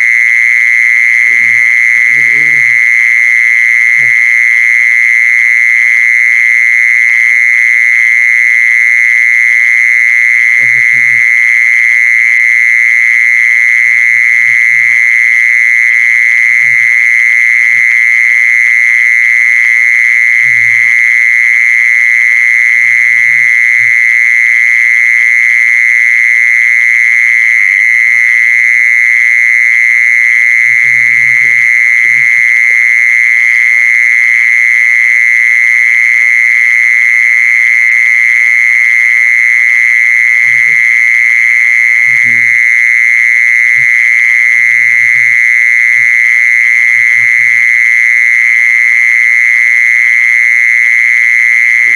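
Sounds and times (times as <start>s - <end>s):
insect trilling: 0.0s - 4.6s, 10.4s - 11.6s, 13.5s - 24.2s, 30.5s - 33.2s, 39.7s - 49.4s, 51.7s - 51.9s.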